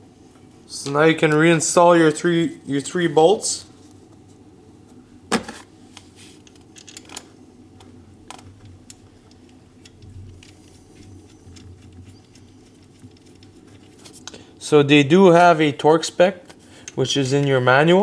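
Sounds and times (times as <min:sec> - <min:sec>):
metallic clicks of bolts handled: 0:06.4 - 0:07.3.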